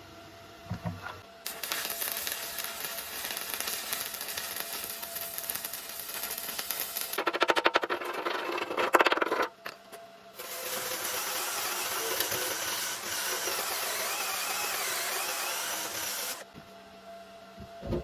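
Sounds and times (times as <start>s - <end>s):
arc welding crackle: 1.4s - 7.5s, 10.4s - 16.5s.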